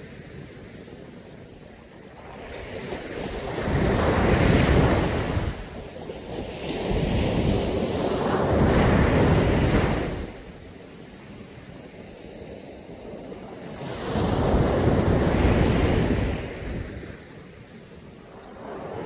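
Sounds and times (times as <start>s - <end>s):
waves breaking: 2.2s - 10.5s.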